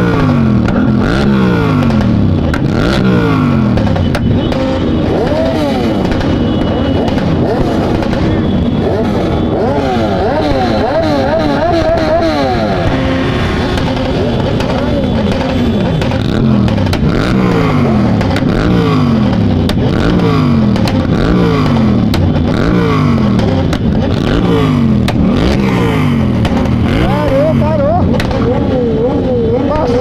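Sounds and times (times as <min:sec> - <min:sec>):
motorcycle engines revving past: 0:00.0 - 0:30.0.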